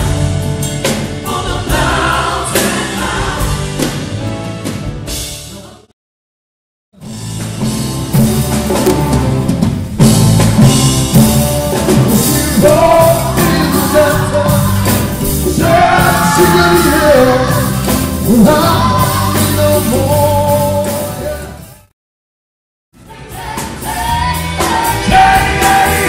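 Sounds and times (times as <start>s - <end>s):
rock band playing live: 0.0s - 5.7s, 7.0s - 21.9s, 23.1s - 26.0s
person singing: 12.2s - 21.7s, 23.4s - 26.0s.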